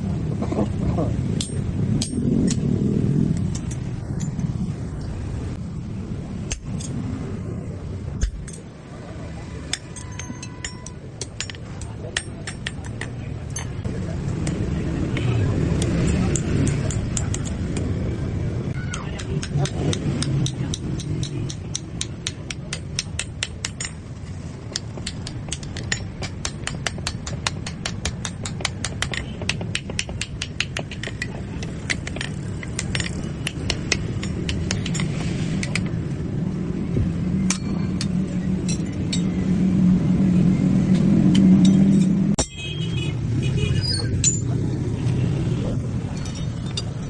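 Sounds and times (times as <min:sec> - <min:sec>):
low rumble: 0:00.0 - 0:08.8
hammer strikes on metal: 0:01.4 - 0:02.7, 0:09.7 - 0:14.6, 0:15.8 - 0:17.9, 0:18.7 - 0:35.9, 0:37.5 - 0:39.4, 0:41.0 - 0:42.8.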